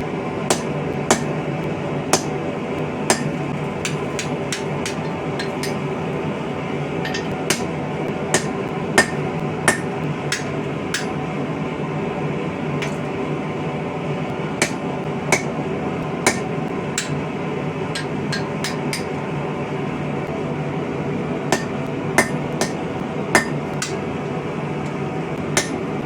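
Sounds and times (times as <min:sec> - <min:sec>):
steady hum: 0:00.0 - 0:26.0
hammer striking chisel on metal: 0:00.5 - 0:01.4, 0:02.1 - 0:02.3, 0:03.1 - 0:05.8, 0:07.0 - 0:07.7, 0:08.3 - 0:11.2, 0:12.8 - 0:13.0, 0:14.6 - 0:15.5, 0:16.2 - 0:17.2, 0:18.0 - 0:19.2, 0:21.5 - 0:22.8, 0:23.4 - 0:24.0, 0:25.6 - 0:25.8.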